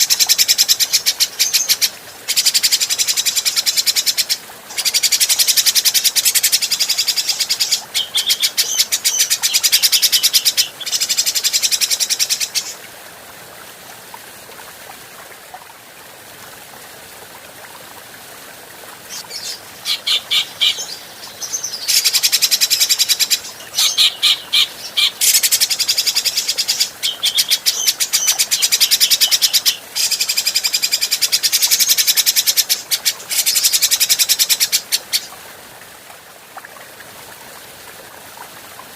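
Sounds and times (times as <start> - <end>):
bird chattering calls: 19.1 - 21.0, 21.8 - 35.3.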